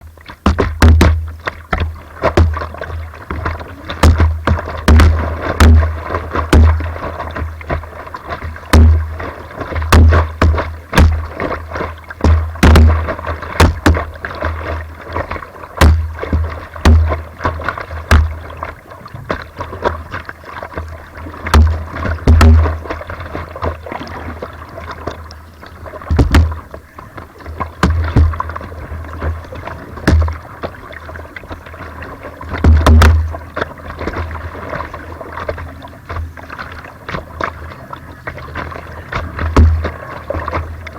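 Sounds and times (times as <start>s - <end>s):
paddle strokes splashing: 0.0s - 40.9s
rushing water: 0.0s - 40.9s
low thumps on microphone: 0.4s - 18.5s, 21.5s - 23.0s, 26.0s - 26.7s, 27.8s - 30.4s, 32.6s - 33.4s, 39.4s - 40.0s.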